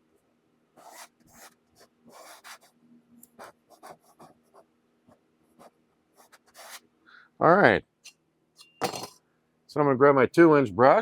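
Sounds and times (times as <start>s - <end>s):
painting knife scraping canvas: 0.8s - 2.6s.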